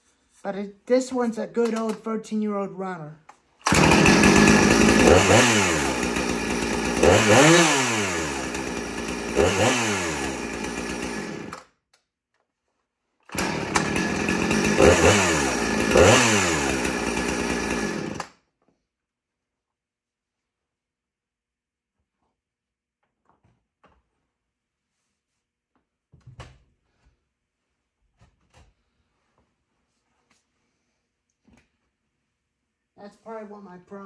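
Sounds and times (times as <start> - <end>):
chainsaw engine running: 3.6 - 11.6, 13.3 - 18.3.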